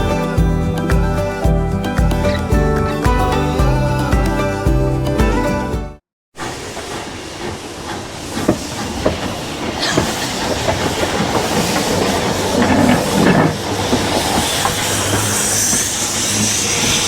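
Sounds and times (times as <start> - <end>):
steam train rushing hiss: 6.4 - 17.0
wheels clicking over rails: 6.4 - 17.0.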